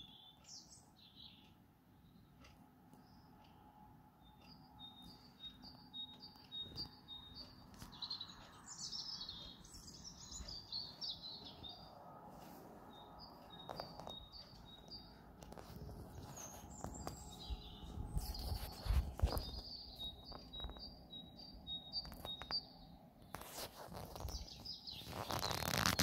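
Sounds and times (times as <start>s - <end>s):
songbirds singing faintly: 0.0s - 26.0s.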